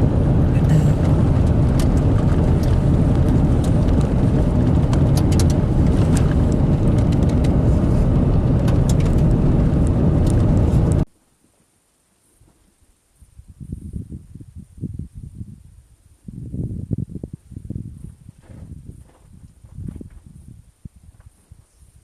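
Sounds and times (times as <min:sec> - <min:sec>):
car road rumble: 0:00.0 - 0:11.1
small clicks and rattles: 0:01.0 - 0:11.0.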